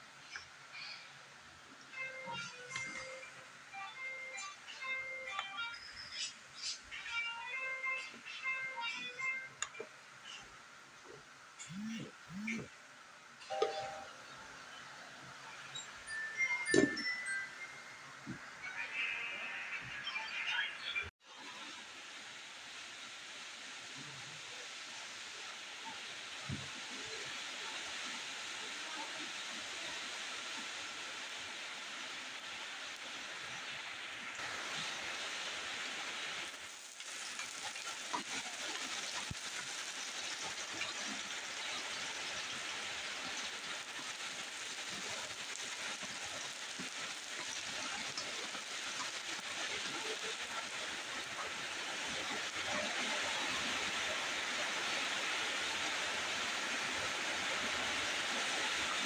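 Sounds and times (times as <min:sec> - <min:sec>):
food sizzling in hot oil: 0:21.4 - 0:59.0.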